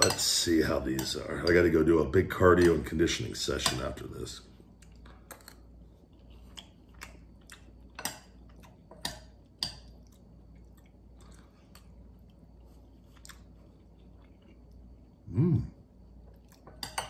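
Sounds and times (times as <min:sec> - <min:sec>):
person chewing soft food: 0:04.6 - 0:16.8.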